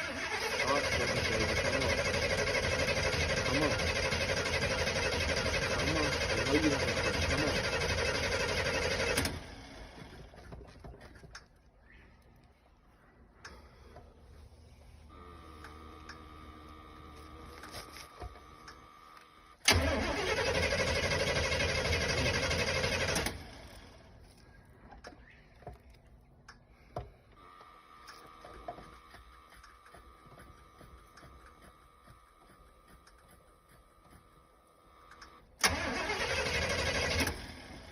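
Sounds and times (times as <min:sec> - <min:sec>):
car engine cranking: 0:00.0 - 0:11.6, 0:15.6 - 0:24.2, 0:35.0 - 0:37.9.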